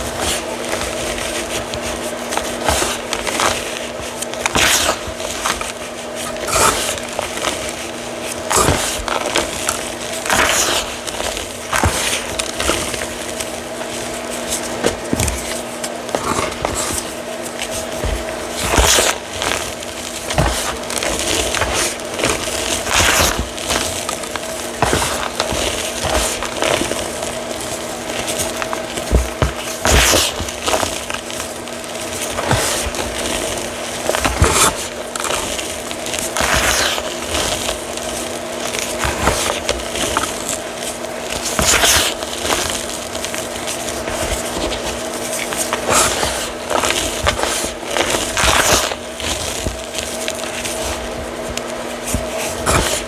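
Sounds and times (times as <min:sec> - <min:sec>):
chalk crunching: 0:00.0 - 0:53.0.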